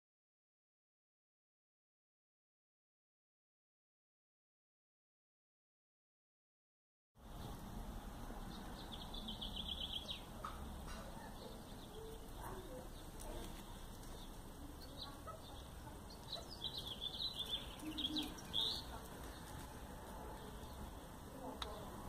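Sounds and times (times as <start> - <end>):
bird chirps: 8.4 - 19.7.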